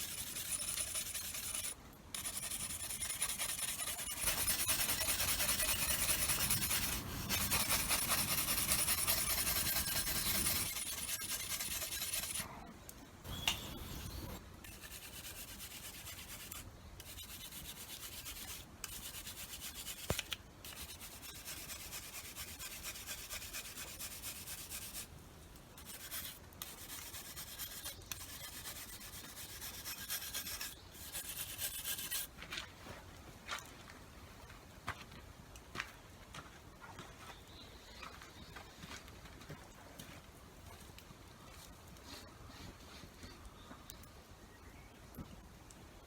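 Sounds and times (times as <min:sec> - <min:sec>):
metal tool being filed: 0:00.0 - 0:12.5, 0:13.3 - 0:25.1, 0:25.8 - 0:32.3.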